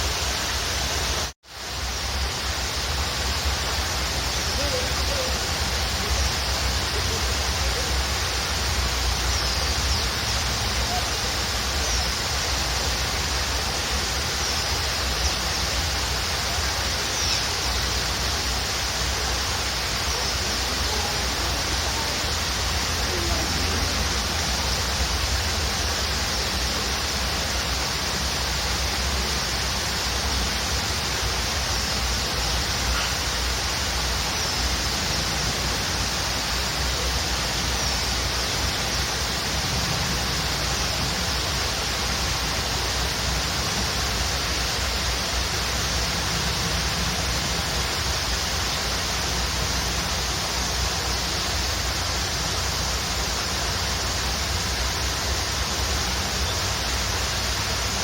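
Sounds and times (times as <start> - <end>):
waterfall rushing: 0.0 - 58.0
faint bird chirps: 17.0 - 17.9, 31.7 - 33.4.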